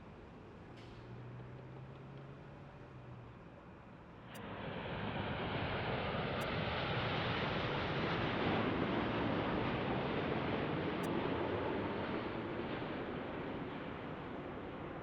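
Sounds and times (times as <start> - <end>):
jet airliner engine rush: 4.2 - 15.0.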